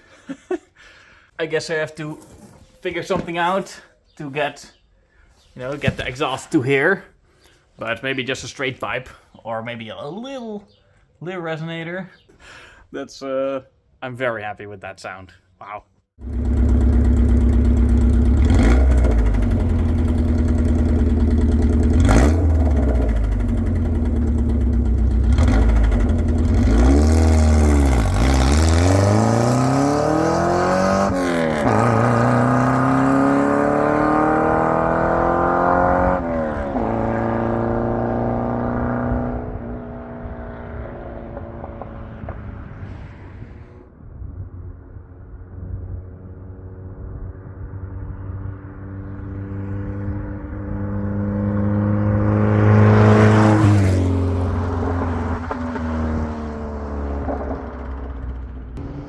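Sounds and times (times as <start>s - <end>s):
loud car exhaust accelerating: 16.2s - 43.6s, 45.2s - 59.0s.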